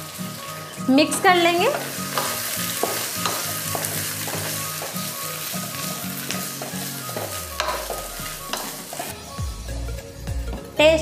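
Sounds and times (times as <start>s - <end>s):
food sizzling in hot oil: 0.0s - 9.6s
spatula scraping a pan: 1.7s - 9.1s.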